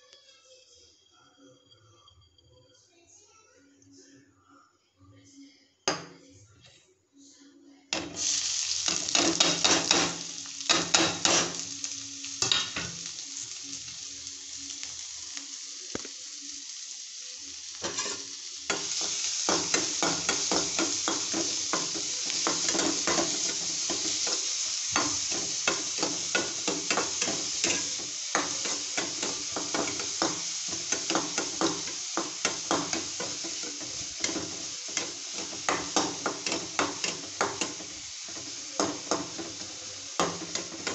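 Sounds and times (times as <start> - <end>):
onions sizzling in oil: 8.0 - 40.9
spatula scraping and tapping pan: 17.8 - 39.5.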